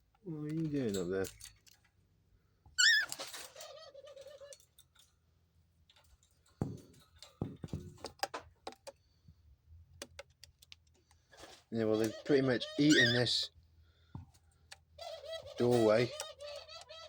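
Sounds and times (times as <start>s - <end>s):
birds clicking on cage bars: 2.8s - 9.2s, 9.9s - 13.4s, 14.2s - 17.0s.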